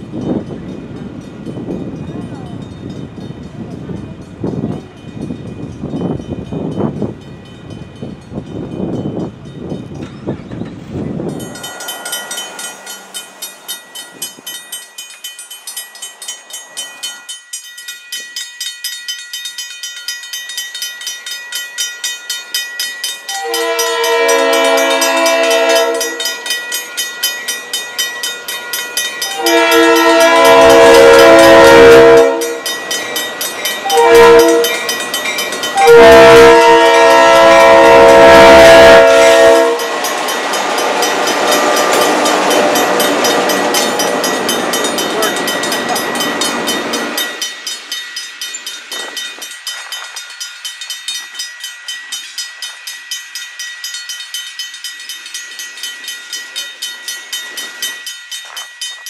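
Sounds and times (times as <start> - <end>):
railroad crossing bell ringing: 0.0 - 59.0
locomotive horn blast: 23.3 - 26.4, 29.3 - 32.6, 33.9 - 34.8, 35.8 - 40.0.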